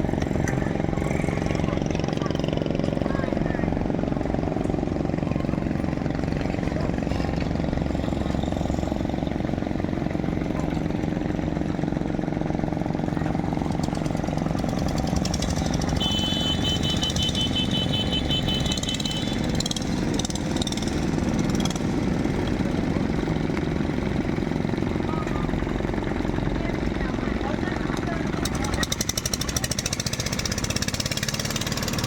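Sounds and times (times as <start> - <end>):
boat engine running at low revs: 0.0 - 32.0.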